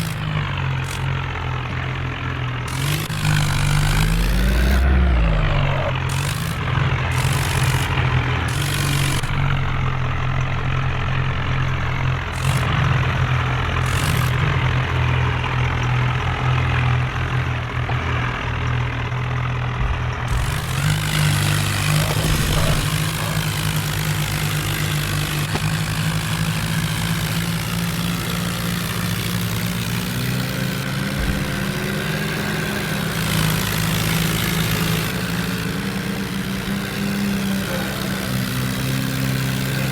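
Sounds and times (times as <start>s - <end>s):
diesel tractor engines running: 0.0s - 39.9s.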